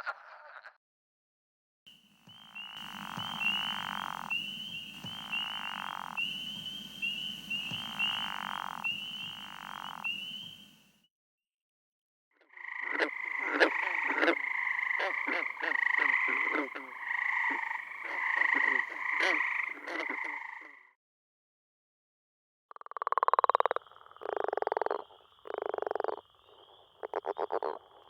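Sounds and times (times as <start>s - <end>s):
frogs peeping chorus: 2.0s - 10.8s, 12.4s - 20.8s, 23.3s - 28.0s
frog call of rapid clicks: 2.3s - 10.7s, 12.5s - 20.8s, 22.7s - 28.0s
frog trills: 2.3s - 10.8s, 12.5s - 20.8s, 22.8s - 28.0s.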